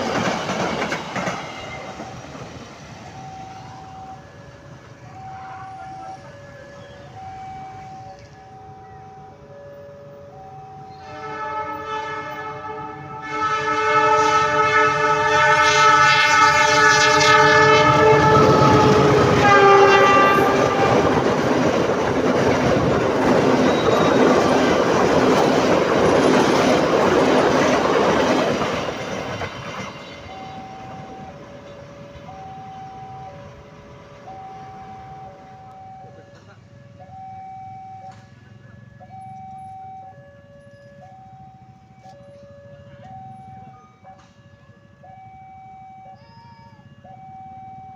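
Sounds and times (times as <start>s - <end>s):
rumble and clatter of passing train: 0.0s - 47.9s
level crossing alarm tones: 1.2s - 11.3s, 15.8s - 47.9s
train horn blast: 10.8s - 21.3s.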